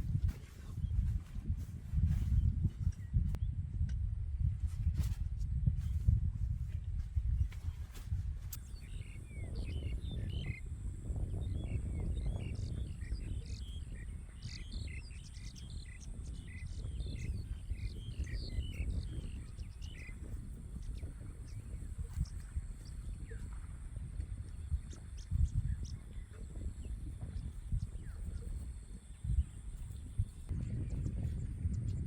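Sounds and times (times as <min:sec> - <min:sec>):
birds chirping: 0:07.4 - 0:32.0.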